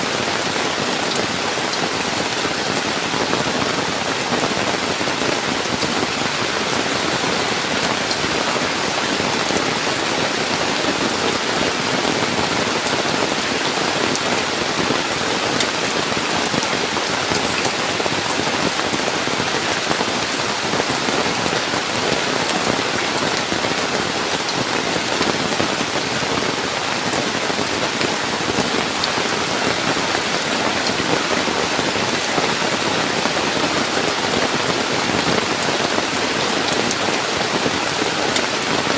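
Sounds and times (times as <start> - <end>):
heavy rain in forest: 0.0 - 38.9.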